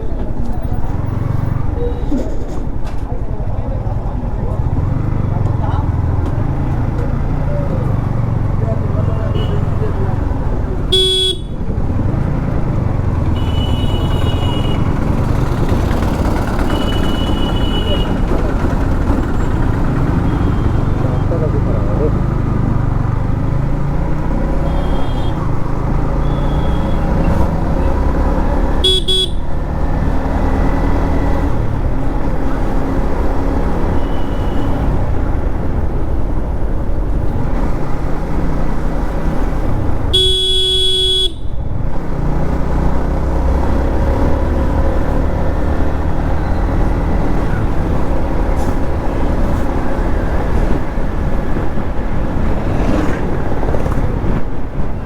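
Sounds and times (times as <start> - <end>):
motorcycle engine rumble: 0.0 - 55.0
vehicle horn honking: 9.3 - 9.8, 10.9 - 11.6, 13.3 - 14.9, 16.7 - 18.2, 24.6 - 25.4, 26.2 - 27.2, 28.8 - 29.6, 34.0 - 34.9, 40.1 - 41.6.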